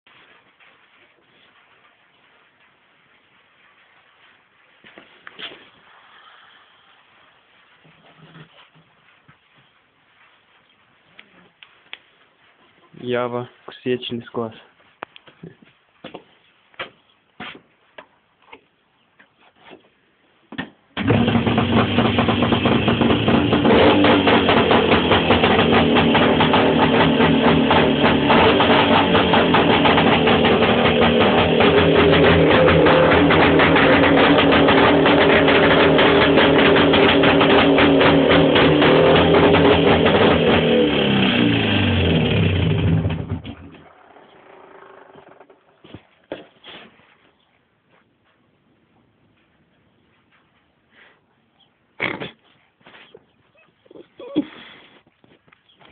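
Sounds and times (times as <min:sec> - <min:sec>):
motorcycle engine running: 0:21.0 - 0:45.7.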